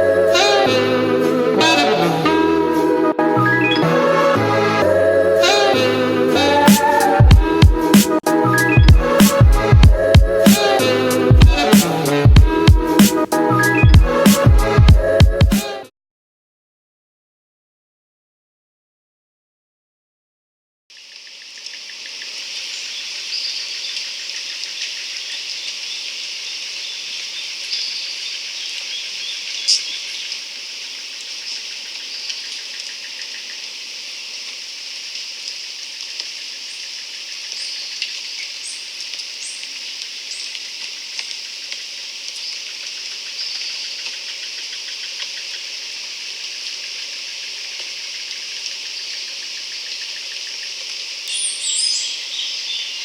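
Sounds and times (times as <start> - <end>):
insects chirping: 20.9 - 53.0
short high bird chirps: 28.9 - 30.0, 51.3 - 53.0.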